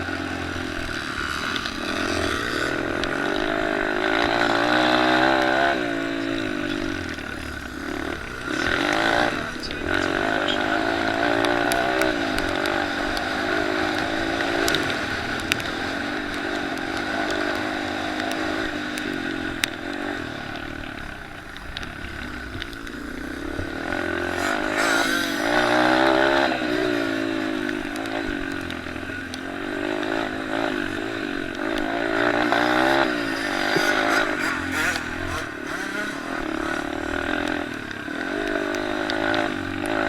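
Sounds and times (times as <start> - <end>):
dirt bike engines revving: 0.0 - 40.0
sharp clicks: 21.5 - 40.0.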